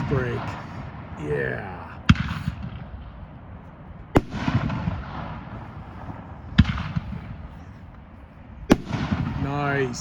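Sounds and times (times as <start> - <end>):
fireworks booming: 0.0 - 3.2, 4.1 - 7.5, 8.7 - 10.0.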